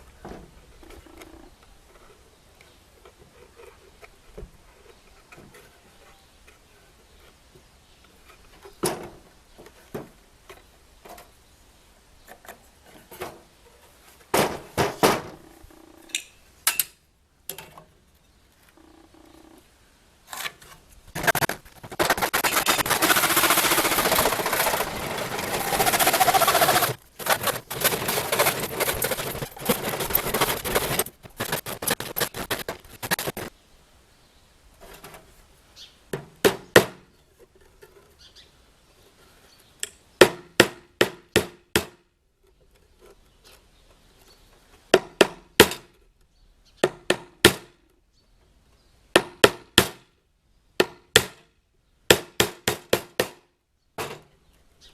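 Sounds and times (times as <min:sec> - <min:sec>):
harsh rasping noise: 0:21.1 - 0:33.5
hammer striking wood: 0:49.2 - 0:50.0, 0:50.8 - 0:51.4, 0:52.1 - 0:53.4.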